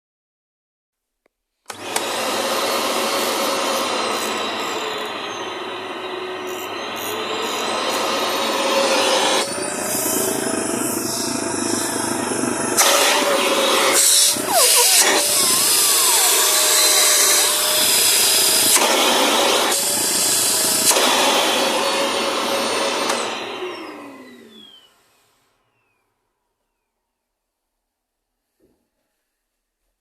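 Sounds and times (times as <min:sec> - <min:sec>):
vacuum motor winding down: 0:01.7 - 0:25.2
vacuum cleaner running: 0:01.7 - 0:25.5.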